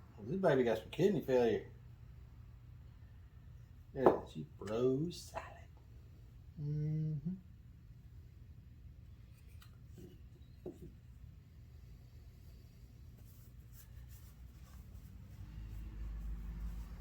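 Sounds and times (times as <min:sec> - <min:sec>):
faint scratching: 0:11.9 - 0:17.0.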